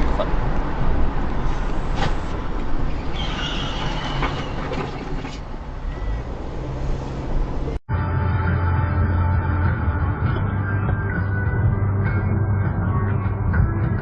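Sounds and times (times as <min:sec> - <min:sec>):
road and vehicle rumble: 0:00.0 - 0:14.0
high-pitched squeal: 0:02.8 - 0:07.3.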